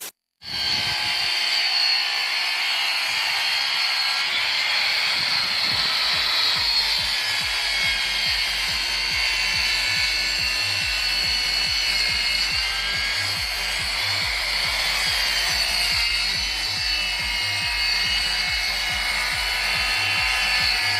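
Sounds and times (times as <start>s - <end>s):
power tool whining on wood: 0.4s - 20.9s
background music with beat: 5.6s - 20.9s.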